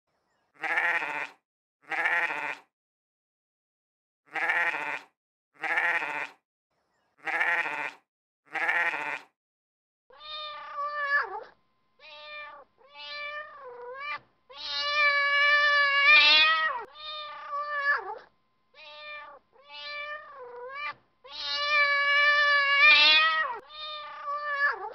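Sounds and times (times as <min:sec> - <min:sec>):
goat bleating: 0:00.6 - 0:02.7, 0:04.3 - 0:06.4, 0:07.2 - 0:09.3
cat meowing: 0:10.1 - 0:24.9.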